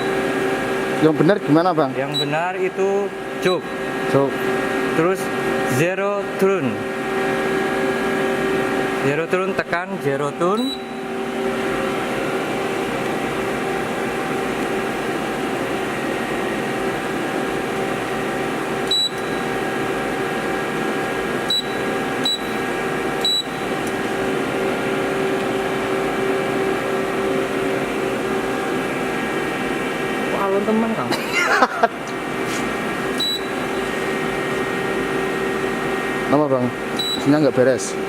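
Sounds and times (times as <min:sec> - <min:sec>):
machine humming: 0:00.0 - 0:38.0
short high beeps: 0:10.6 - 0:11.0, 0:18.9 - 0:19.4, 0:21.5 - 0:22.6, 0:23.2 - 0:23.6, 0:33.2 - 0:33.6, 0:37.0 - 0:37.3.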